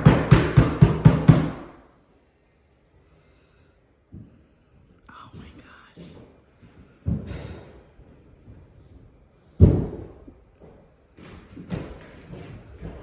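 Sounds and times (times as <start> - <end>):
heavy thuds: 5.3 - 13.0.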